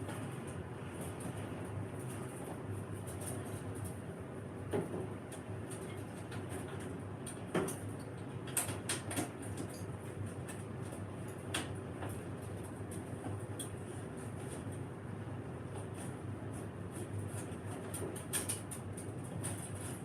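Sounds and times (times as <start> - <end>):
steady low hum: 0.0 - 20.0
clicks and light knocks: 4.7 - 13.8.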